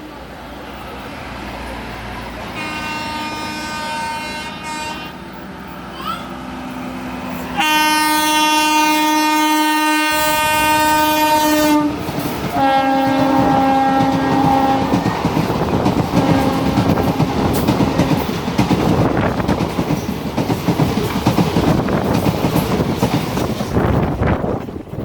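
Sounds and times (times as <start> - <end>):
passing train: 0.0 - 25.0
train horn blasts: 2.5 - 5.4, 7.5 - 15.1, 16.2 - 18.2.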